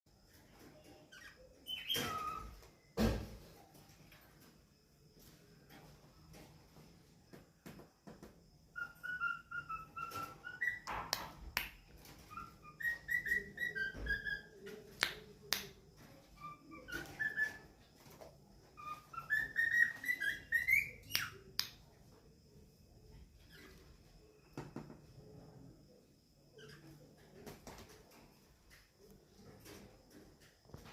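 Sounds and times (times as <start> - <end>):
cockatiel whistling: 8.8 - 10.9, 12.3 - 14.6, 16.4 - 17.6, 18.8 - 21.4.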